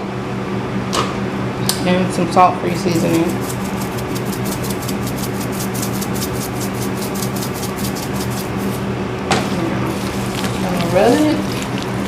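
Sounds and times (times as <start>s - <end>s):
steady low hum: 0.0s - 12.0s
seasoning shaker rattling: 2.7s - 8.9s, 9.9s - 12.0s.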